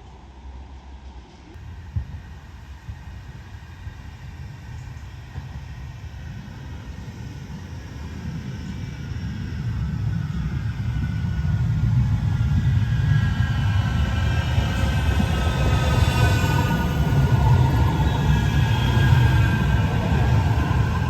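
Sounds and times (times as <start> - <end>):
tram rumble: 0.0 - 21.0.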